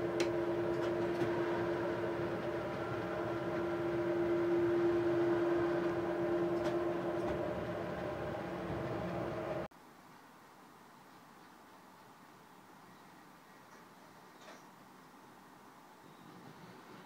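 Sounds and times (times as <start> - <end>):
train interior hum and rolling: 0.0 - 9.7.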